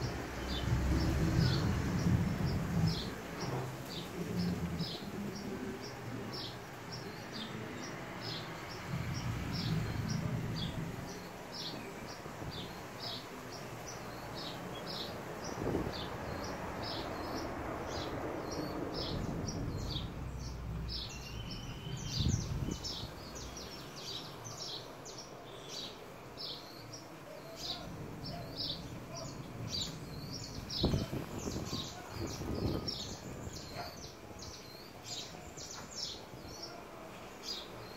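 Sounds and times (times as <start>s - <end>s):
small birds chirping: 0.0s - 37.9s
low rumble: 0.4s - 5.5s, 17.5s - 23.2s.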